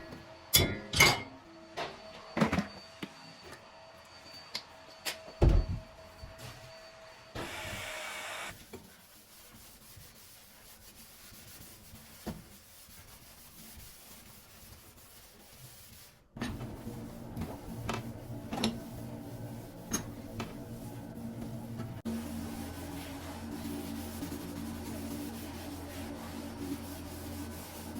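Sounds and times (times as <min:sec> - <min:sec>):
rubbing or scraping: 0:16.9 - 0:27.9.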